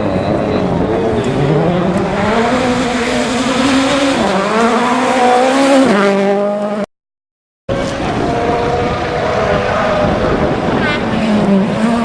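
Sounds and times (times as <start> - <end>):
rally car engine accelerating: 0.0 - 6.9, 7.7 - 12.0.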